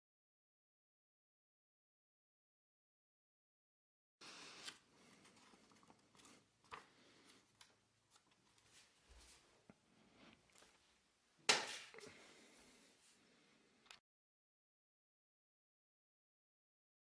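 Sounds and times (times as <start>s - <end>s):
paper crinkle: 4.2s - 9.4s
paper rustling: 4.2s - 9.5s.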